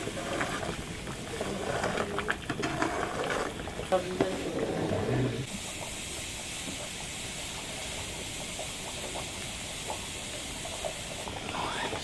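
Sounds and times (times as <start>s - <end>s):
food hissing in a pot: 4.3s - 12.0s.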